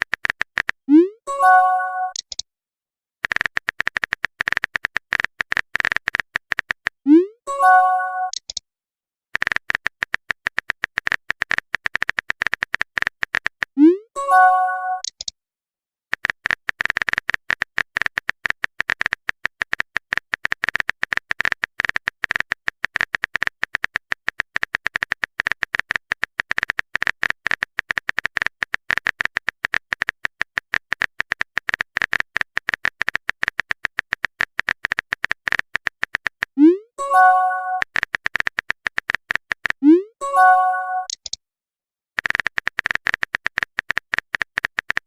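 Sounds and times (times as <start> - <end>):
chime-like message tone: 1.3 - 2.2, 7.5 - 8.3, 14.2 - 15.0, 37.0 - 37.8, 40.2 - 41.1
phone keyboard tapping clicks: 3.2 - 7.0, 9.4 - 13.8, 16.1 - 36.6, 37.2 - 39.8, 42.2 - 45.0.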